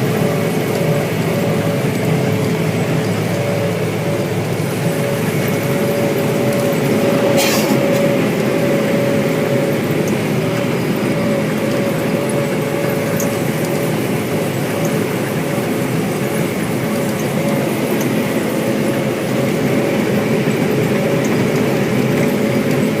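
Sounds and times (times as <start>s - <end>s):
harvester and tractor engines droning: 0.0s - 23.0s.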